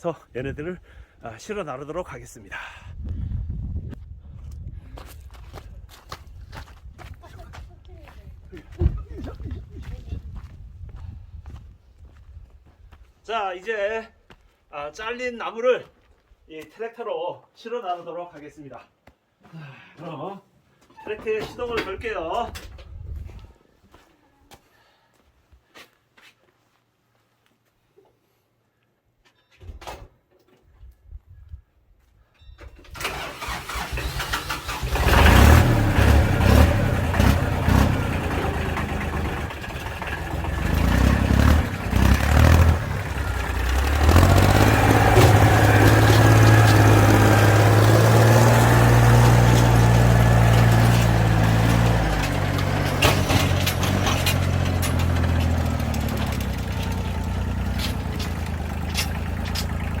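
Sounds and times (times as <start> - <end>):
tractor engine starting and running: 32.7 - 60.0.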